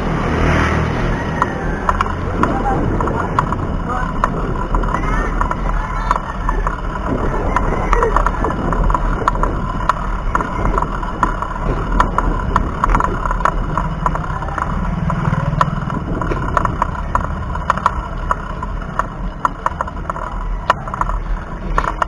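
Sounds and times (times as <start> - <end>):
wind rumbling on microphone: 0.0 - 22.0
bike rattling clicks: 1.0 - 22.0.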